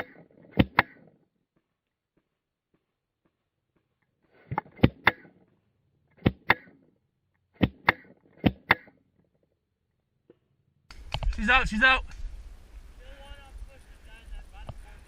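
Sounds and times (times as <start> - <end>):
paintball marker shots: 6.2 - 6.8, 7.6 - 9.0.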